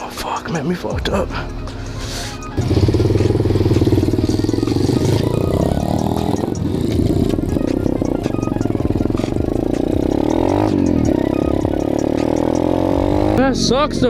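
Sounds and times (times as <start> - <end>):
pit bike engine running: 2.6 - 13.5.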